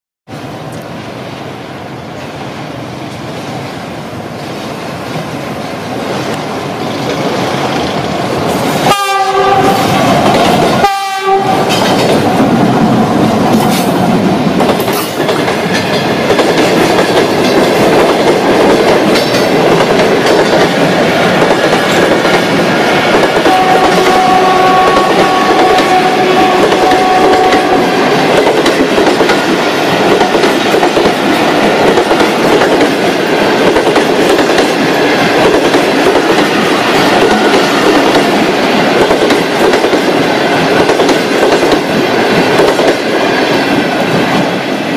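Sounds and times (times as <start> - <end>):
train rumbling and clattering on rails: 0.3 - 44.9
train horn blast: 8.8 - 11.8, 23.4 - 28.2.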